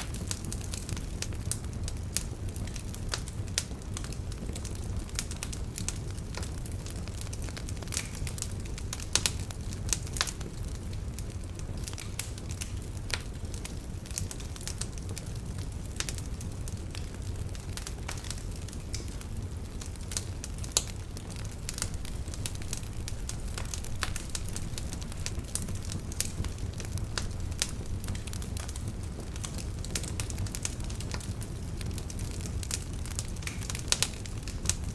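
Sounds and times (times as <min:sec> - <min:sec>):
burning logs snapping and popping: 0:00.0 - 0:34.9
wood fire crackling: 0:00.0 - 0:34.9.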